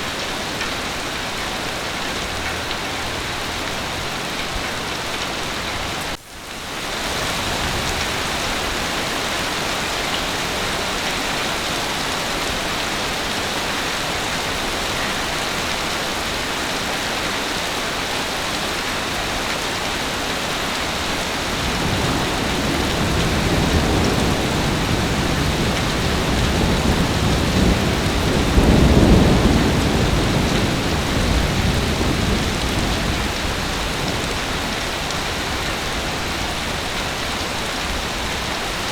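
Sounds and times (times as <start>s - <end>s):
heavy rain falling: 0.0s - 38.9s
low thunder roll: 21.4s - 34.8s.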